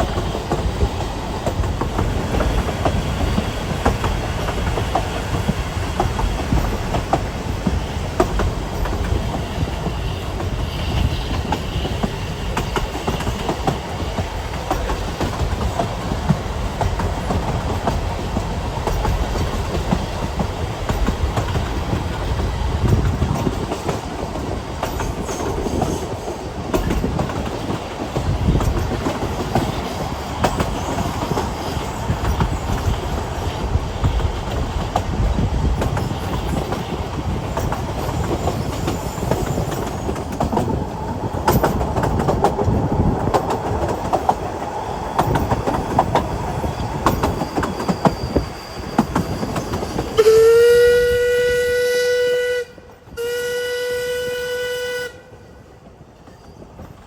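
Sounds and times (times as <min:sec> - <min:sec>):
wheels clacking over rail joints: 0:00.0 - 0:50.2
train rumble: 0:00.0 - 0:57.0
faint high wheel squeal: 0:37.6 - 0:40.4, 0:44.9 - 0:51.8.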